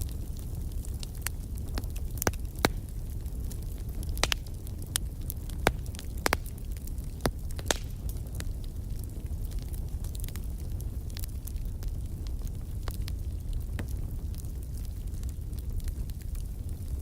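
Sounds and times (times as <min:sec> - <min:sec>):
low rumble of flames: 0:00.0 - 0:17.0
wood fire crackling and popping: 0:00.0 - 0:17.0.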